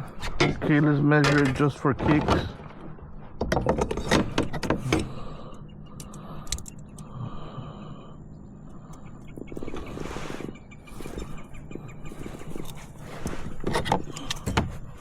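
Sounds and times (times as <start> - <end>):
scattered clicks: 5.9 - 7.1.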